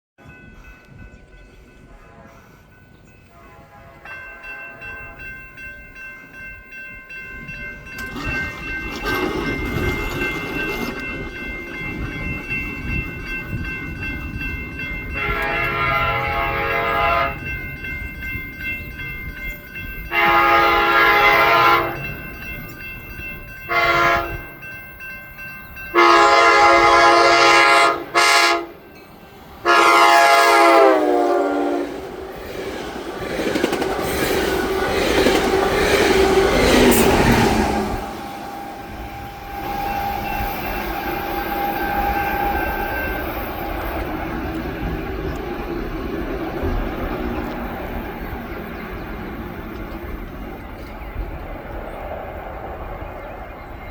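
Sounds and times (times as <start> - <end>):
crossing warning bell ringing: 0.2 - 51.5
train rumble: 0.2 - 53.9
train horn blasts: 1.8 - 5.3, 15.1 - 17.5, 20.1 - 22.1, 23.6 - 24.5, 25.9 - 28.8, 29.6 - 32.0.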